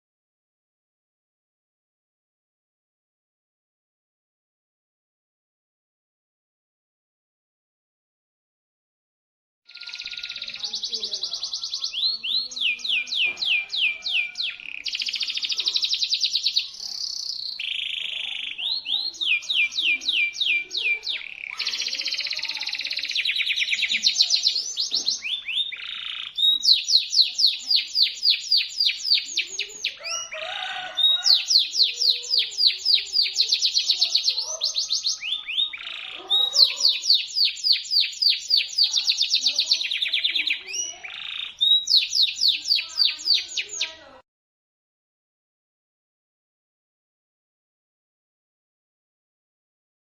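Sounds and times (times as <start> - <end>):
canary singing trills: 9.7 - 44.2.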